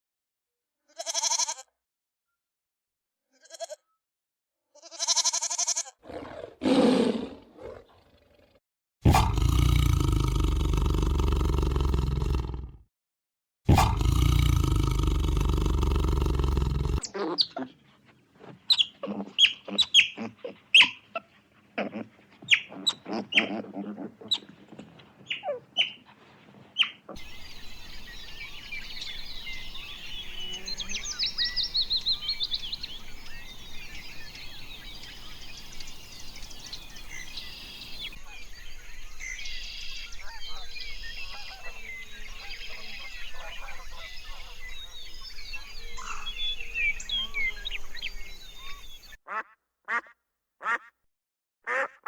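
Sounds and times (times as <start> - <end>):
bird short sharp calls: 9.1 - 12.5, 13.7 - 50.9, 51.7 - 52.0
small birds chirping and twittering: 9.1 - 12.6, 13.7 - 49.2.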